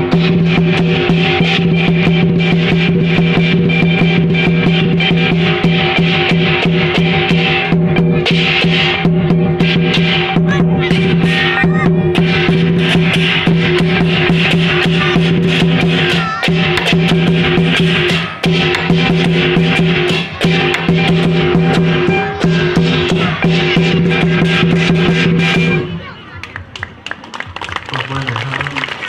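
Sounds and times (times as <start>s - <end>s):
fast drum and percussion strikes: 0.0s - 29.0s.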